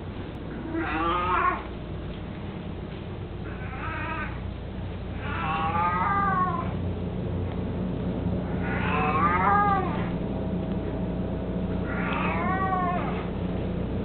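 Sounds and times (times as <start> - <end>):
cat meowing: 0.6 - 1.7, 3.4 - 4.4, 5.2 - 6.7, 8.5 - 10.2, 11.8 - 13.3.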